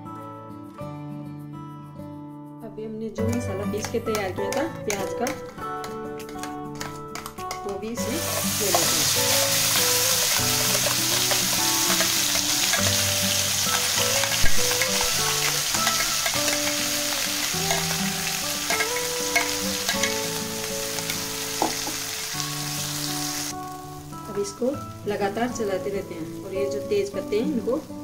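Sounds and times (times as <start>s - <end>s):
soft background music: 0.0s - 28.0s
paste sizzling in hot fat: 8.0s - 23.6s
spoon scraping a steel bowl: 9.8s - 13.0s, 14.2s - 16.8s, 17.6s - 18.0s, 18.6s - 20.2s.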